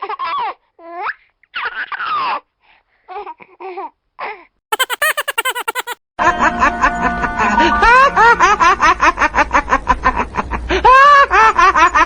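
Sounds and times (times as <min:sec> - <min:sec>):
people laughing: 0:04.8 - 0:06.0.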